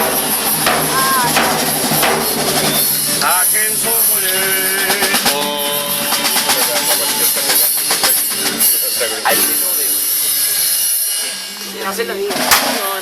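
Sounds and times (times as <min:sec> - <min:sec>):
steady hiss: 0:00.0 - 0:13.0
group singing held notes: 0:03.1 - 0:08.1.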